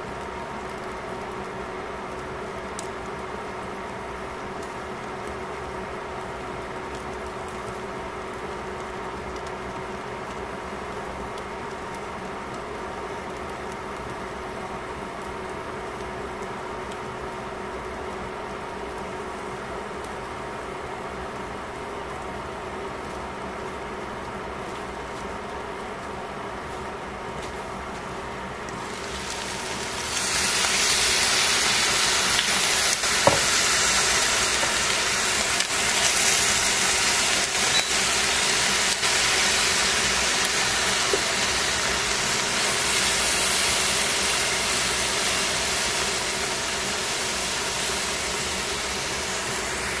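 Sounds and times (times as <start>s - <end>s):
food sizzling in a pan: 27.4s - 50.0s.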